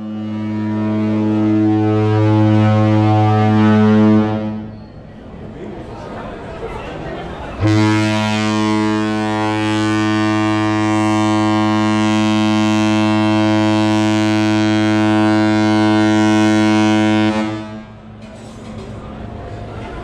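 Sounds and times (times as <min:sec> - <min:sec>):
deep ship horn blast: 0:00.0 - 0:04.7, 0:07.6 - 0:18.2.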